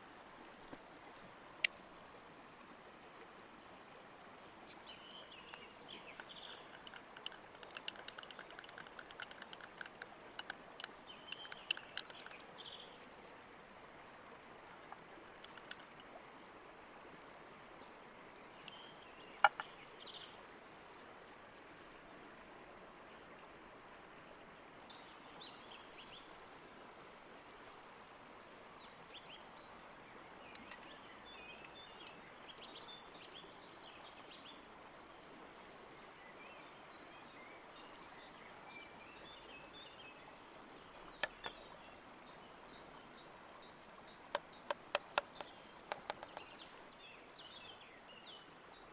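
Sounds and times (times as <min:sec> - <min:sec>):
creek running: 0:00.0 - 0:48.9
small birds chirping: 0:04.7 - 0:13.4, 0:14.0 - 0:23.2, 0:29.1 - 0:34.7, 0:36.2 - 0:48.9
sharp clicks: 0:05.5 - 0:12.5, 0:15.3 - 0:16.1, 0:44.4 - 0:46.4.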